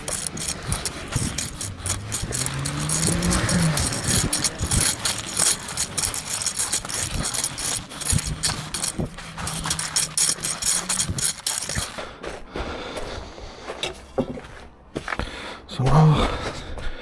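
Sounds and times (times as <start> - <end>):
tool scraping sand and gravel: 0.0 - 12.0.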